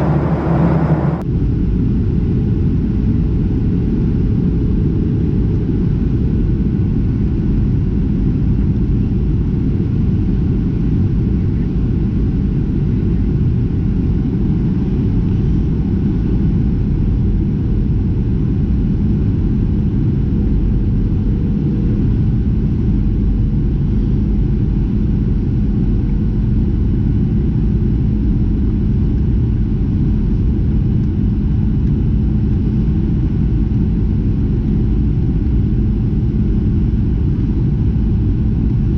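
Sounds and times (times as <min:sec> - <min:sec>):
faint steady hum: 0:00.0 - 0:01.8
jet cabin rumble: 0:00.0 - 0:38.9.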